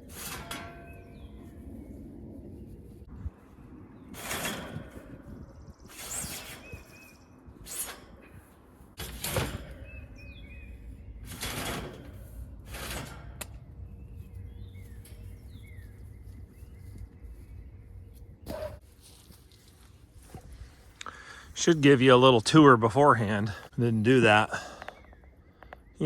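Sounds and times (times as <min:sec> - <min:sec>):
metal parts sliding and scraping: 0:00.0 - 0:17.5
small birds chirping: 0:00.8 - 0:07.8, 0:09.7 - 0:11.3, 0:13.5 - 0:18.8, 0:24.5 - 0:26.0.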